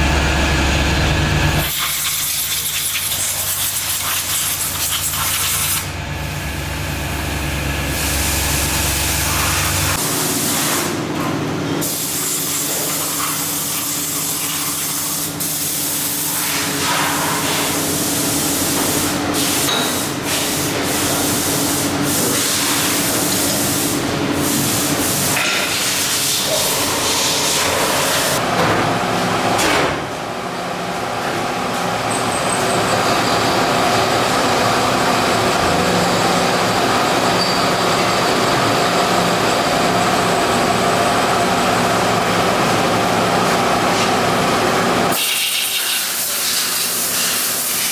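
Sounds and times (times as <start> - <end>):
steady machine hum: 0.0 - 1.8, 5.5 - 11.9, 23.5 - 45.2
machine hissing and spraying: 1.6 - 11.1, 11.8 - 28.4, 45.1 - 47.9.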